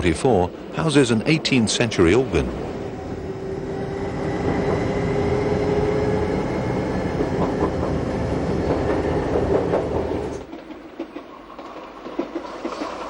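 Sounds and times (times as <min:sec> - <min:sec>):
electric train rumbling: 0:00.0 - 0:13.0
wheels clattering over rail joints: 0:07.2 - 0:13.0.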